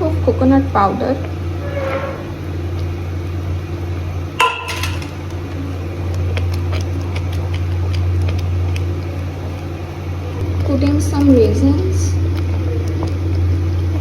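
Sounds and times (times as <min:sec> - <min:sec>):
low hum: 0:00.0 - 0:14.0
metal spoon clinking on pot: 0:04.4 - 0:05.1.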